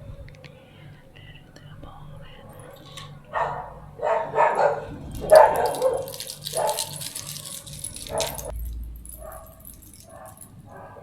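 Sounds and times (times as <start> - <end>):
dog barking: 2.5 - 11.0.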